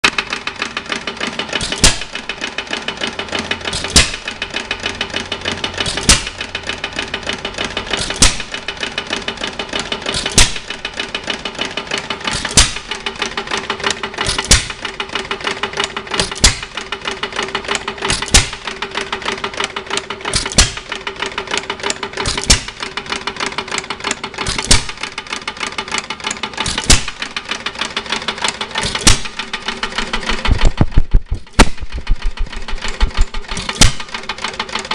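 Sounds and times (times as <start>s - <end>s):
flywheel clatter: 0.0s - 34.9s
engine firing bang: 1.6s - 2.3s, 3.7s - 4.4s, 5.8s - 6.5s, 8.0s - 8.6s, 10.1s - 10.8s, 12.3s - 13.0s, 14.2s - 14.8s, 18.1s - 18.7s, 22.2s - 22.8s, 28.8s - 34.3s.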